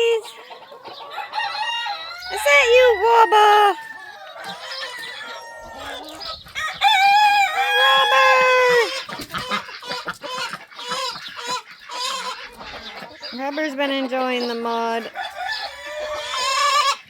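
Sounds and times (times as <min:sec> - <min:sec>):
chickens clucking: 0:00.0 - 0:17.0
rooster crowing: 0:01.0 - 0:08.9, 0:15.1 - 0:17.0.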